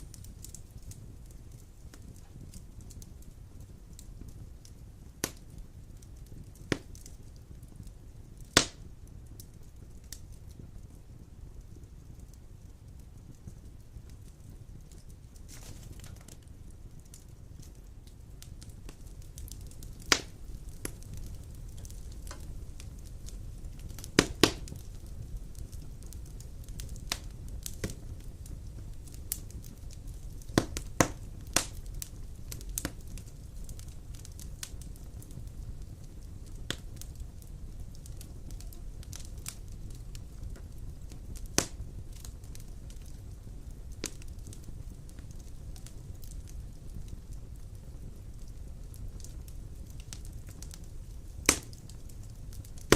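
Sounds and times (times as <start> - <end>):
fire crackles and pops: 0.0 - 52.9
logs burning in fireplace: 0.0 - 52.9.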